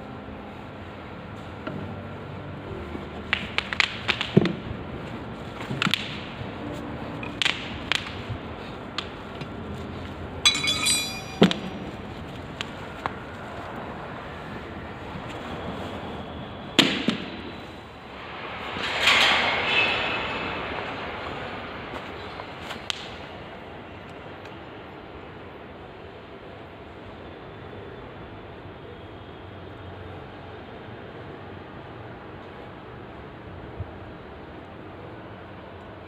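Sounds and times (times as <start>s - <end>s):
tools and metal parts clinking: 10.5s - 11.8s.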